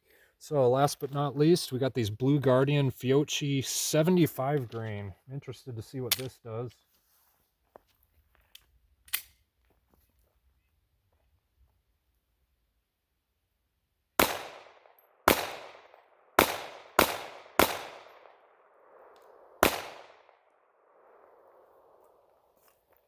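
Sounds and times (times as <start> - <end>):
pistol shots: 14.2 - 22.0.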